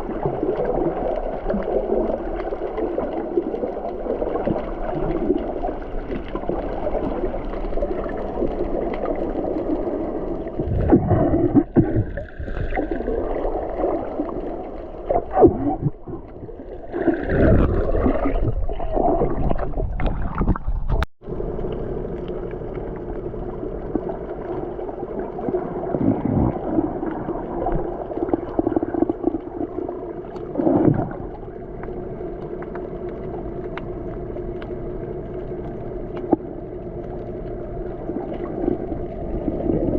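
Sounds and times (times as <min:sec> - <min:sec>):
boat rumble and water rush: 0:00.0 - 0:39.9.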